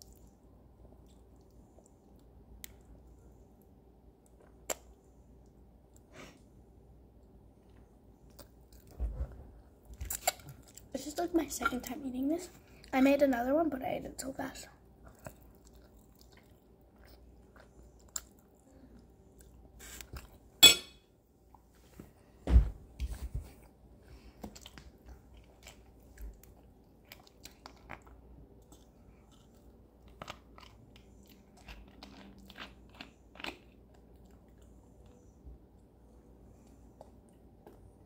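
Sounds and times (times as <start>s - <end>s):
thump: 22.5s - 22.8s
person chewing and biting food: 24.4s - 35.2s.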